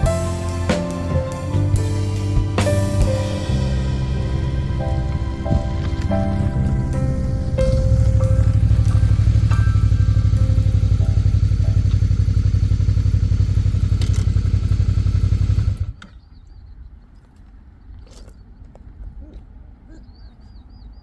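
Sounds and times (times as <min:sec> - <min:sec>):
motorcycle engine running: 0:00.0 - 0:16.1.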